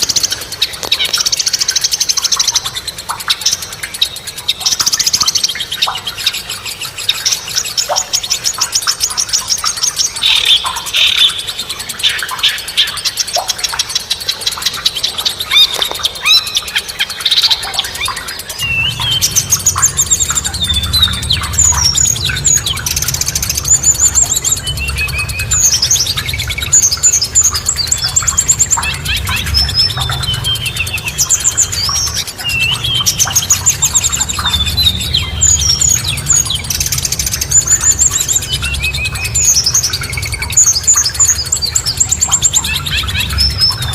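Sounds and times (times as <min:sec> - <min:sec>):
songbirds chirping and trilling: 0:00.0 - 0:43.9
bird whistled phrases: 0:15.0 - 0:43.9
steady low rumble: 0:17.6 - 0:43.9.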